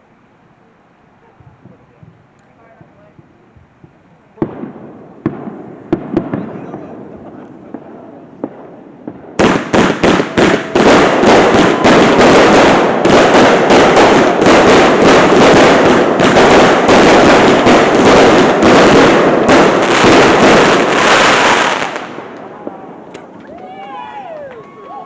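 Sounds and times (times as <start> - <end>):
fireworks bangs: 1.3 - 25.0
rapid firework crackling: 2.8 - 23.4.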